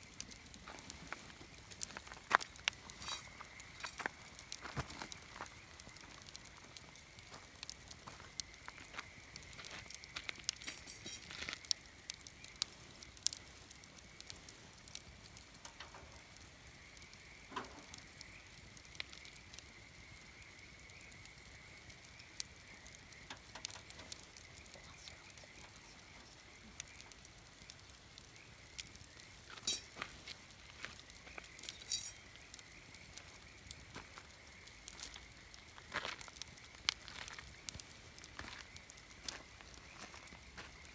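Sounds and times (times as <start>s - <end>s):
campfire crackling and popping: 0.0s - 40.9s
faint steady high tone: 31.3s - 33.5s.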